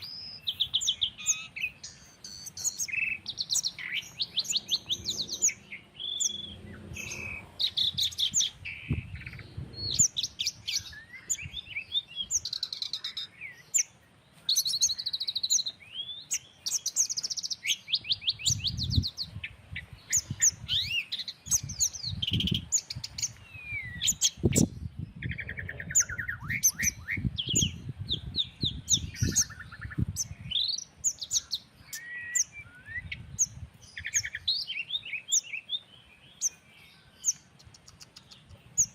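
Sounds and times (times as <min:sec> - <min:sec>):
songbirds chirping and singing: 0:00.0 - 0:38.9
breeze rumbling: 0:02.9 - 0:12.5, 0:21.5 - 0:30.6.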